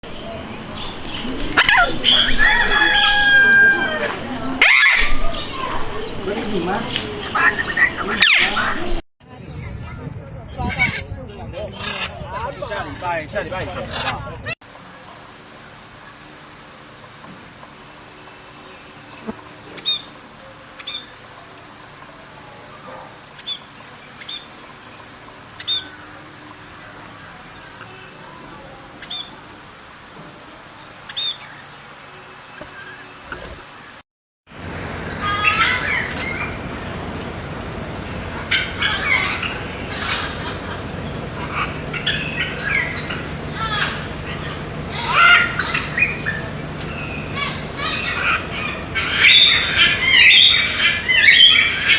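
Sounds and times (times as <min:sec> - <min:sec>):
parrot chirping: 0:00.0 - 0:09.0, 0:35.0 - 0:37.0, 0:37.8 - 0:51.9
steady background hiss: 0:00.0 - 0:09.0, 0:14.7 - 0:34.0, 0:34.6 - 0:51.9.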